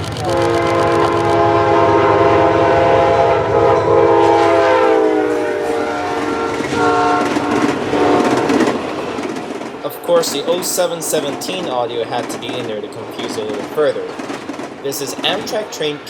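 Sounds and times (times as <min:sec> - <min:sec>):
moving train rumble: 0:00.0 - 0:16.0
train horn blast: 0:00.2 - 0:08.6.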